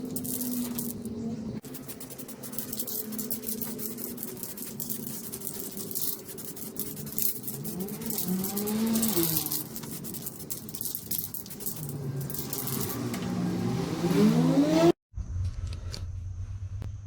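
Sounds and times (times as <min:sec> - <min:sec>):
small motor changing speed: 0:05.7 - 0:15.0.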